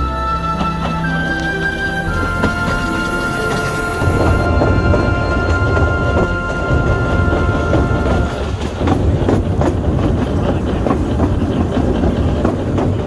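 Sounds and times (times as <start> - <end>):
held musical chord: 0.0 - 8.6
train wheels clicking over rail joints: 2.4 - 13.0.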